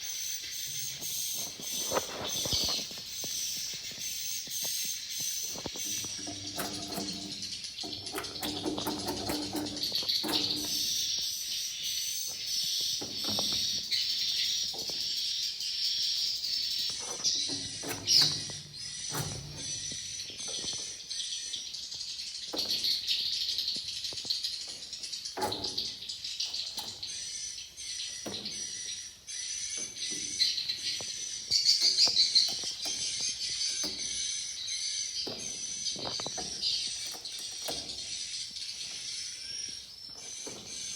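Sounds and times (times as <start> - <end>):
sharp clicks and rattles: 1.0 - 21.1.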